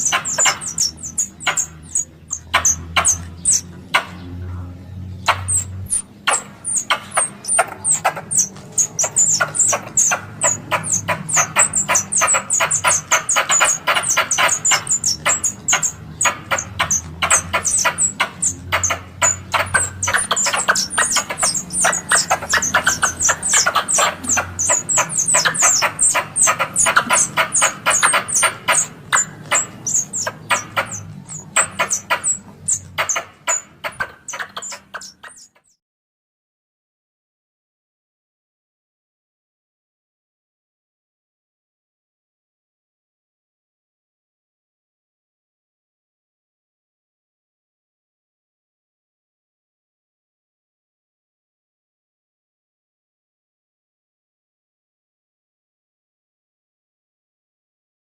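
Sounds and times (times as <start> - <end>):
squirrel chattering call: 0.0 - 35.8.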